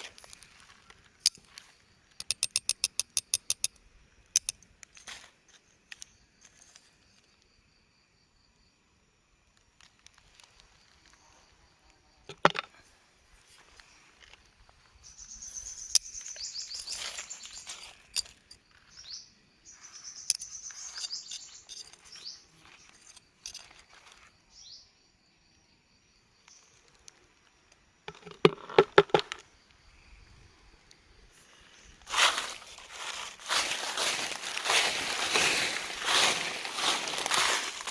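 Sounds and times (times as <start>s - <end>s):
faint insect trill: 0.0s - 37.9s
bird chirping: 14.9s - 25.7s.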